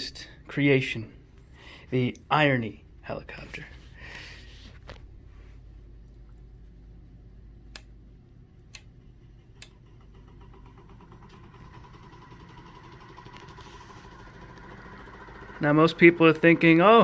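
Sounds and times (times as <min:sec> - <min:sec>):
small fan motor humming: 0:03.8 - 0:17.0
sharp clicks: 0:07.7 - 0:08.0, 0:08.6 - 0:09.0.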